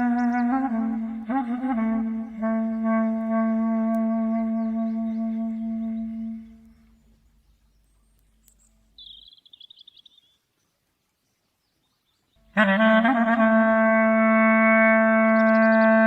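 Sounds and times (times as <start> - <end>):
clarinet playing: 0.0 - 6.6, 12.4 - 16.0
bird trilling: 8.5 - 10.4.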